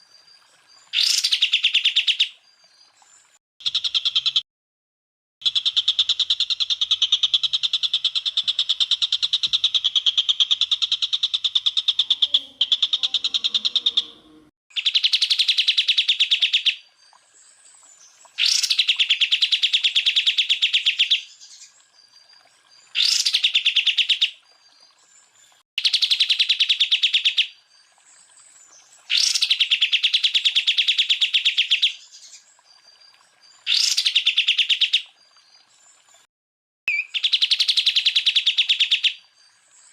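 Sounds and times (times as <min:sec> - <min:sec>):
bird singing harsh trills: 0:11.9 - 0:16.7, 0:36.9 - 0:39.2.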